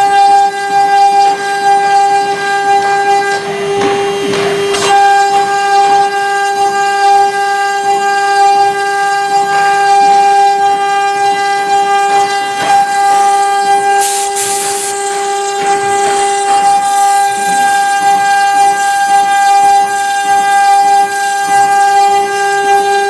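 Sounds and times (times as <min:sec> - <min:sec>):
cnc router spindle whine: 0:00.0 - 0:23.0
burst of hiss: 0:14.0 - 0:14.9.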